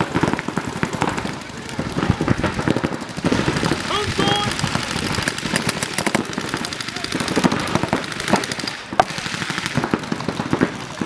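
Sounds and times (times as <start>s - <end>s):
paintball markers firing: 0.1s - 11.0s.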